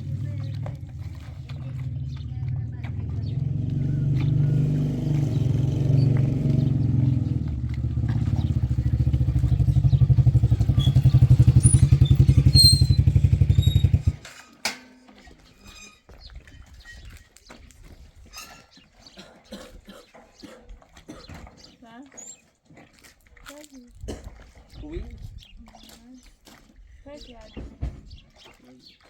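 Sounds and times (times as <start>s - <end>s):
engine running: 0.0s - 14.5s.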